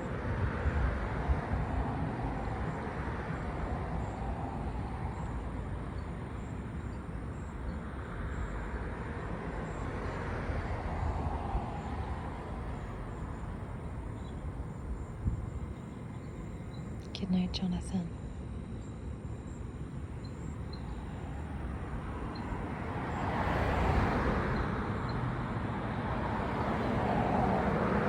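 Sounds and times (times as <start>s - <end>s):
distant road traffic: 0.0s - 28.0s.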